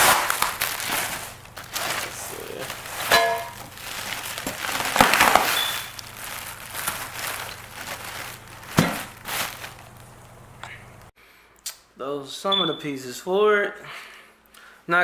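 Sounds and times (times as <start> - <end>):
packing material crinkling: 0.0 - 11.1.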